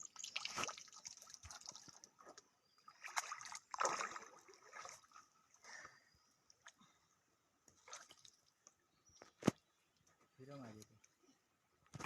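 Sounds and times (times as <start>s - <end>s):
water splashing and sloshing: 0.0s - 5.8s, 7.6s - 10.0s.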